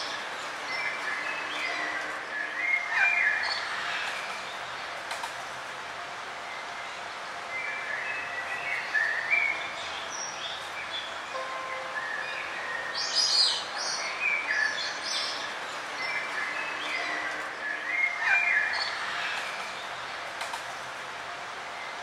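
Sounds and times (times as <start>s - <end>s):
songbirds chirping: 0.0s - 22.0s
steady background hiss: 0.0s - 22.0s.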